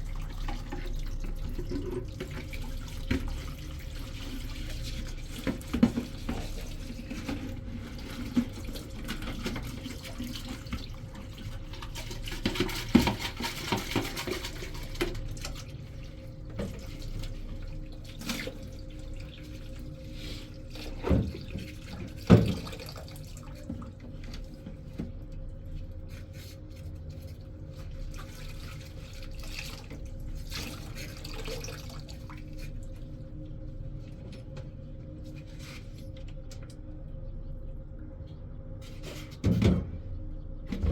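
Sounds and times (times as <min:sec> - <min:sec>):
tap water running: 0:00.0 - 0:25.8, 0:27.7 - 0:33.2.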